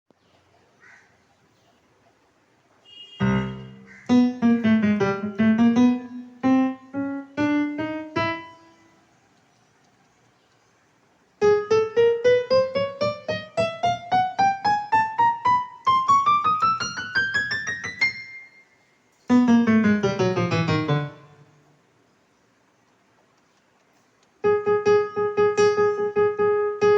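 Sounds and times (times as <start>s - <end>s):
electronic keyboard playing piano runs: 3.2s - 9.0s, 11.4s - 21.5s, 24.4s - 26.9s.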